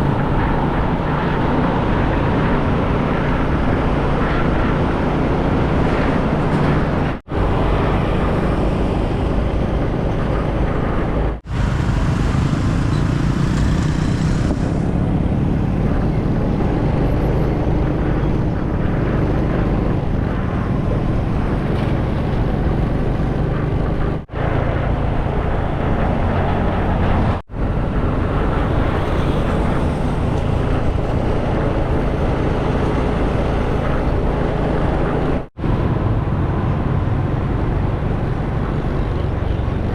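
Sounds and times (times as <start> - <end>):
wind noise: 0.0 - 39.9
motorcycle engine: 6.4 - 16.6.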